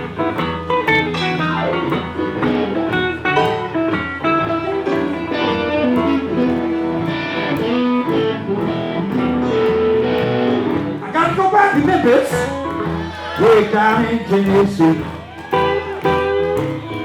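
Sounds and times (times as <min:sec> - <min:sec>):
blues band instrumental: 0:00.0 - 0:17.0
electric guitar: 0:00.0 - 0:17.0.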